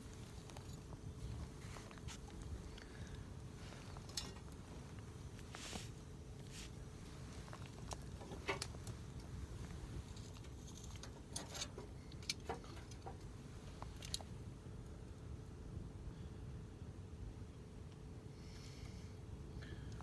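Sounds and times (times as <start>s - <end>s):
campfire wood crackling: 0.0s - 14.6s.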